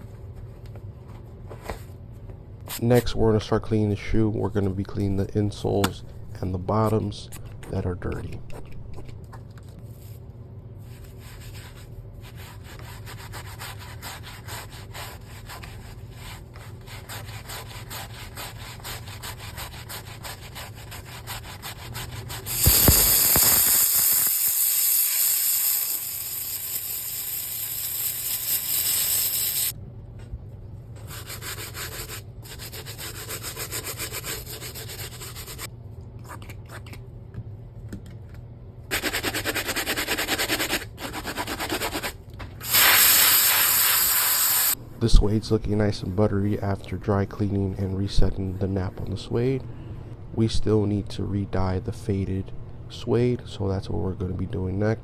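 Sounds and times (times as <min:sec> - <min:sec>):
loud hiss: 0:22.5 - 0:29.7, 0:42.6 - 0:44.8.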